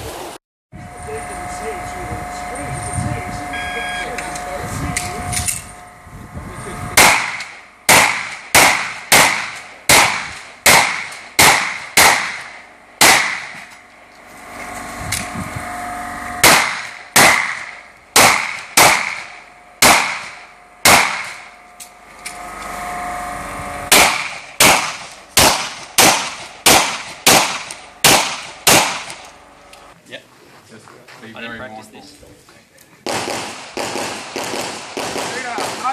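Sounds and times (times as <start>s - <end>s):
pistol shots: 7.0s - 13.6s, 16.4s - 21.5s, 23.9s - 29.2s, 33.0s - 35.9s.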